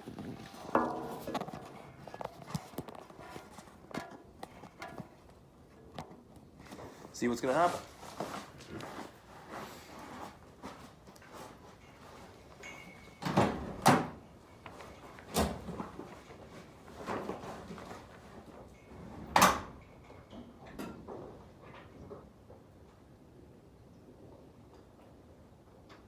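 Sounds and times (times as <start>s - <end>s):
clunks and knocks: 0.0s - 5.2s.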